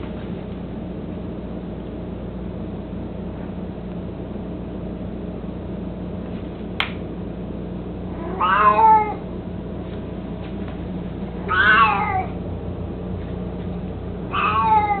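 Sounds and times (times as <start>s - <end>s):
steady low hum: 0.0s - 15.0s
cat meowing: 8.1s - 9.2s, 11.4s - 12.4s, 14.3s - 15.0s.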